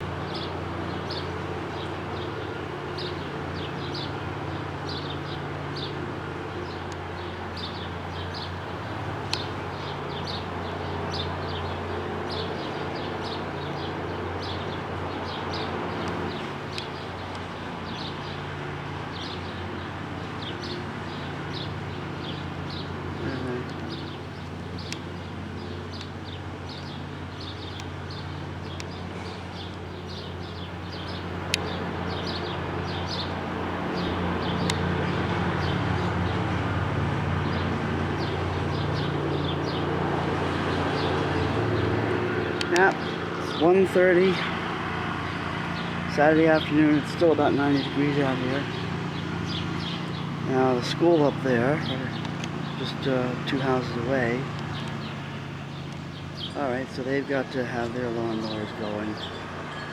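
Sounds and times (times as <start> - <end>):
distant lawnmower engines droning: 0.0 - 59.9
sharp clicks: 16.0 - 17.5, 31.0 - 31.8, 42.4 - 43.1
small bird chirping: 29.6 - 34.9.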